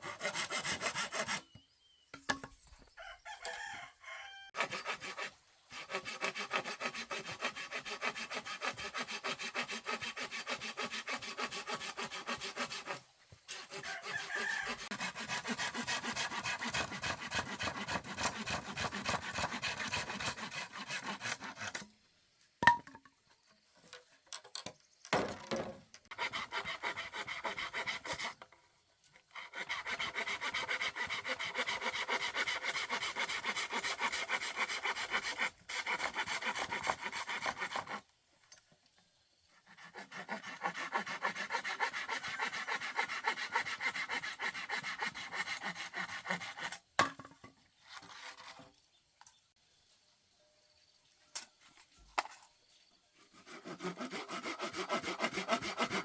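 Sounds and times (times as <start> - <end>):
saw cutting bamboo: 0.0 - 1.6, 4.6 - 21.9, 26.1 - 28.4, 29.2 - 38.1, 39.6 - 46.9, 53.2 - 56.0.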